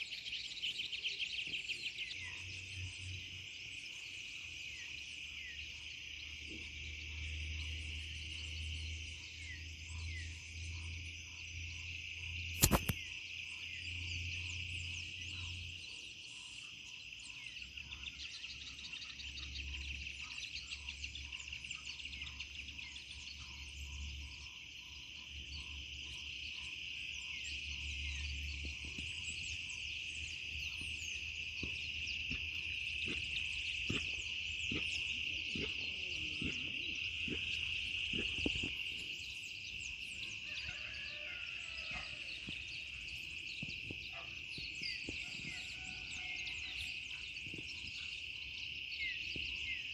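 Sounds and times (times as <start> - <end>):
frogs and insects trilling: 0.0 - 49.9
sharp click: 12.5 - 13.0.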